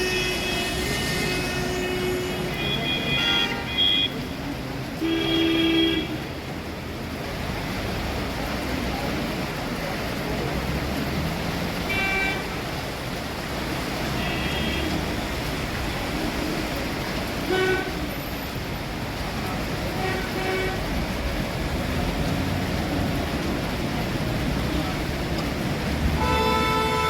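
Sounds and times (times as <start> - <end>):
vehicle horns tooting: 0.0 - 4.2, 5.0 - 6.2, 11.8 - 12.7, 14.0 - 15.3, 26.1 - 27.0
road traffic rushing: 0.0 - 27.0.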